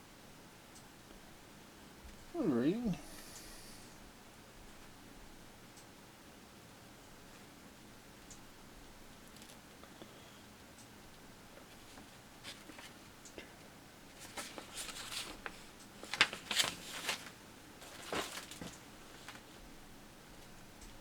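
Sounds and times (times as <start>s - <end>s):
plastic packaging rustling: 14.2s - 19.5s.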